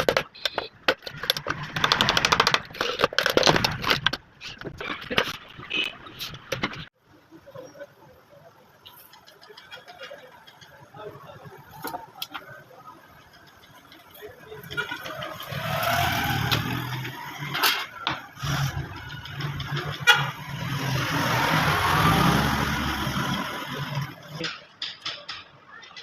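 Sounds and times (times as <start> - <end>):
engine noise: 13.2 - 24.6.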